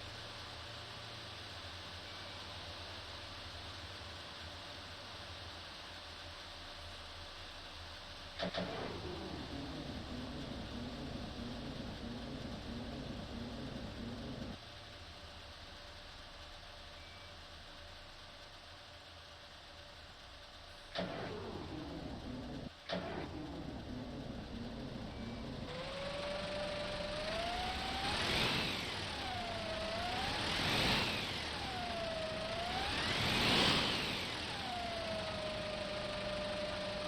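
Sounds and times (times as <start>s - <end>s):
bus engine starting and running: 7.6s - 14.7s, 20.3s - 37.0s.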